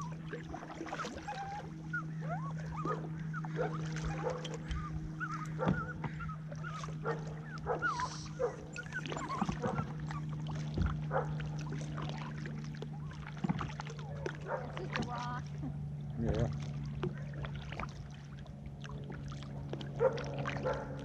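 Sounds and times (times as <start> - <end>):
steady low hum: 0.0 - 21.0
dog whining: 1.0 - 10.3.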